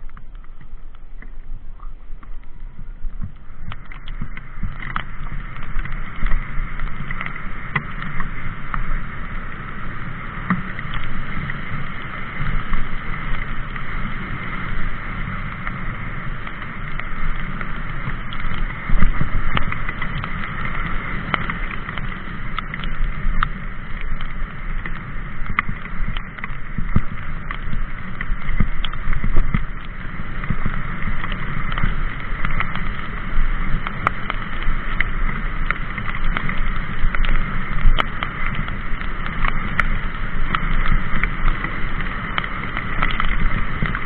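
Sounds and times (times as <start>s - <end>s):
bike rumbling over rough ground: 0.0s - 44.0s.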